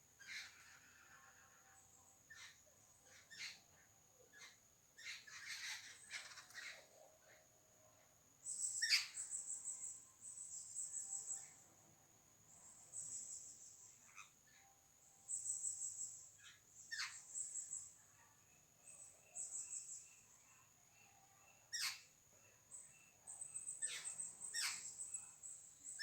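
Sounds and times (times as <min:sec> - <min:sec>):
wild birds chirping: 0:00.0 - 0:26.0.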